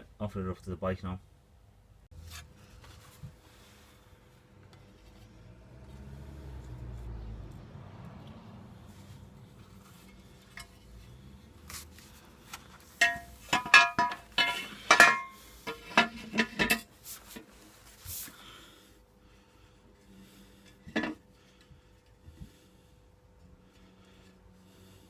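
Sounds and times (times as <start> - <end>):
metal clinks and knocks: 13.0 - 16.9.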